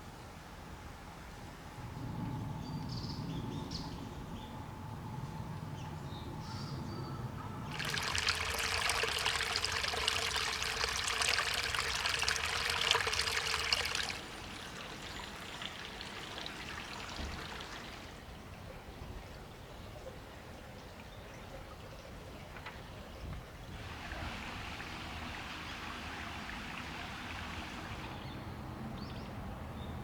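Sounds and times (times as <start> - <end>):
water trickling: 7.6 - 18.7, 23.7 - 28.3
water splashing pour: 7.7 - 18.3, 23.8 - 28.2.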